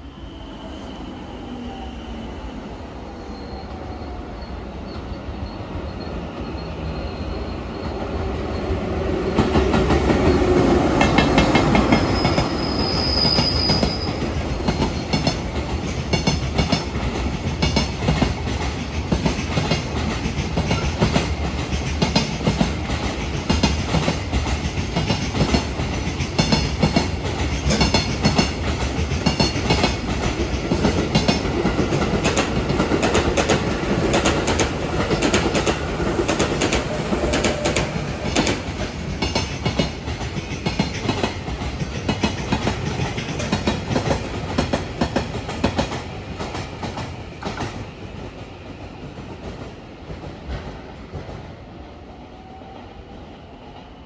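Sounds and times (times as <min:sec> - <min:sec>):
train wheel squeal: 0:00.0 - 0:16.9, 0:36.6 - 0:41.4
freight train passing: 0:00.0 - 0:54.0
passenger train running noise: 0:00.0 - 0:54.0.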